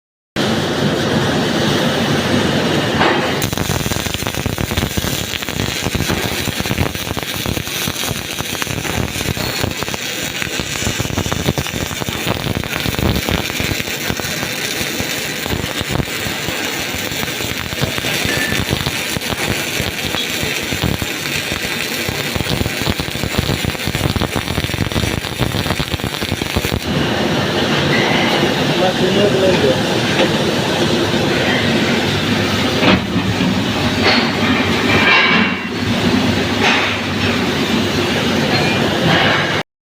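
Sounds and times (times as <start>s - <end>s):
welding arc crackling: 1.7s - 27.0s.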